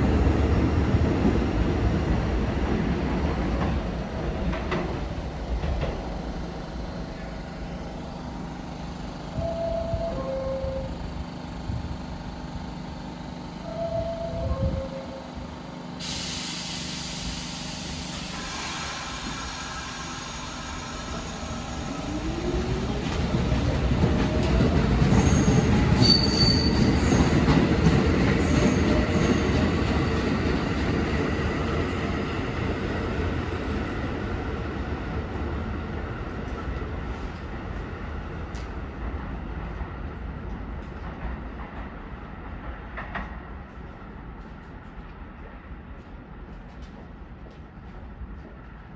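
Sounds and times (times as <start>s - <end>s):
subway train passing: 0.0s - 48.9s
steel wheels squealing on rails: 13.8s - 36.2s.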